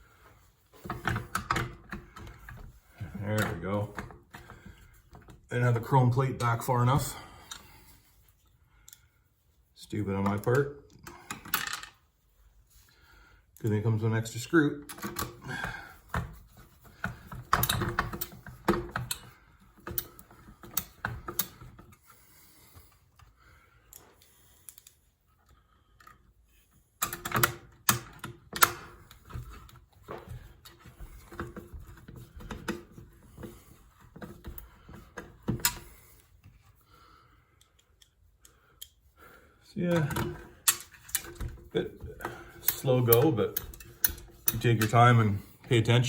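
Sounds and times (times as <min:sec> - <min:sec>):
small screws and metal parts rattling: 0:10.3 - 0:12.0, 0:39.8 - 0:45.5.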